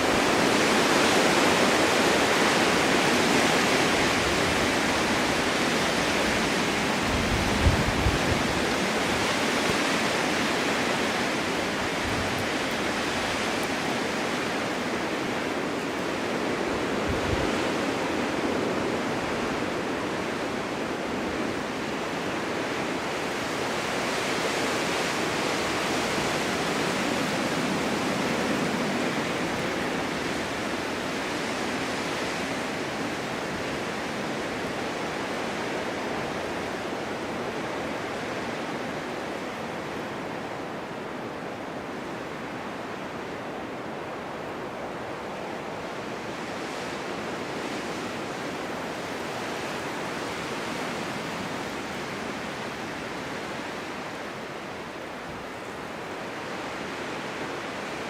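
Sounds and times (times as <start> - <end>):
strong wind blowing: 0.0 - 58.0
low thumps of gusts: 3.9 - 15.8.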